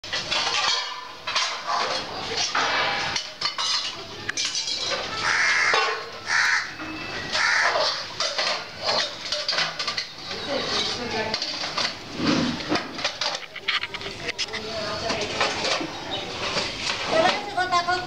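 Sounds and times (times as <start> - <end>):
clinks and clatter: 0.0 - 6.2, 7.6 - 17.8
birds calling: 5.1 - 8.2.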